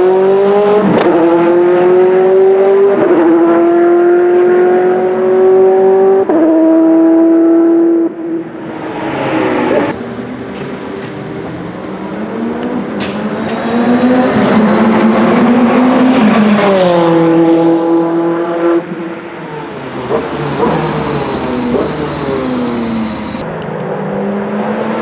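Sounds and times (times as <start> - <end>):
race car engine passing: 8.7 - 25.0
another engine rising: 9.9 - 24.4.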